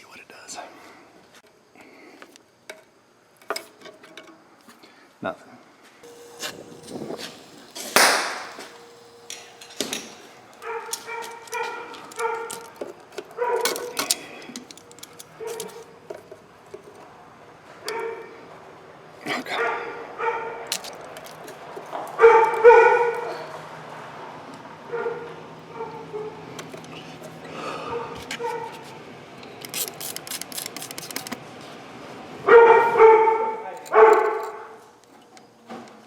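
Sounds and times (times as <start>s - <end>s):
tools clanking on metal: 7.2s - 16.2s.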